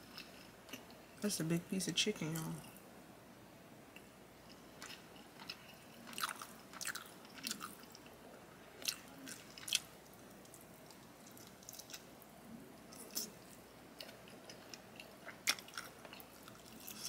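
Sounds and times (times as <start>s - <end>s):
person chewing with mouth clicks: 4.5s - 8.1s.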